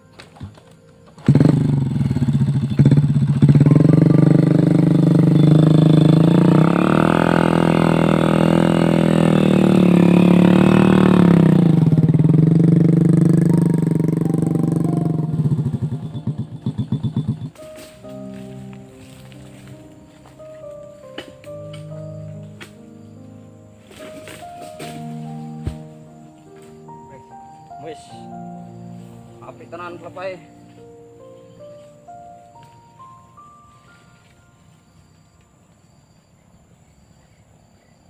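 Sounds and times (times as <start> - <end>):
motorcycle engine revving: 0.4 - 23.1.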